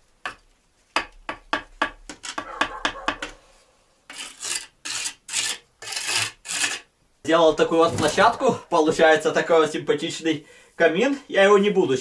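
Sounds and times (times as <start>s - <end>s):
trowel scraping and tapping brick: 4.1s - 6.9s.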